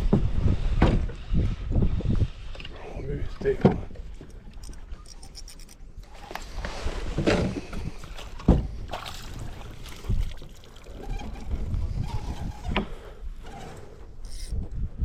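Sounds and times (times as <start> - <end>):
low rumble of wind and water: 0.0 - 15.0
knocks and bumps on kayak: 8.4 - 8.8.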